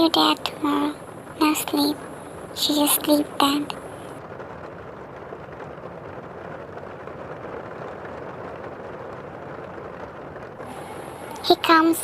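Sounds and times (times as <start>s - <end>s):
steady rushing background noise: 0.0s - 12.0s.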